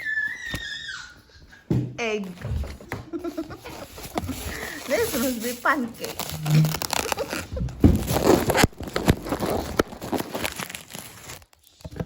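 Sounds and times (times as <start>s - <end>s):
food packaging crinkling: 3.2s - 12.0s
packaging clicks: 6.0s - 11.6s.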